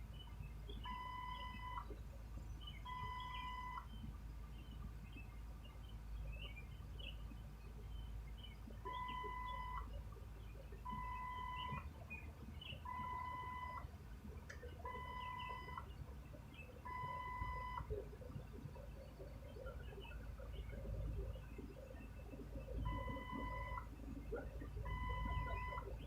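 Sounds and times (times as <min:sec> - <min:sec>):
low background rumble: 0:00.0 - 0:26.0
electronic beeps: 0:00.7 - 0:01.9, 0:02.7 - 0:04.1, 0:08.8 - 0:10.0, 0:10.6 - 0:13.9, 0:14.7 - 0:26.0.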